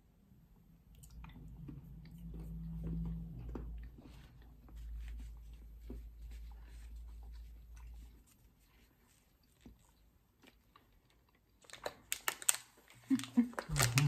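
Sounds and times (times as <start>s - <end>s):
chewing with crunching clicks: 0.9s - 4.8s, 9.4s - 14.0s.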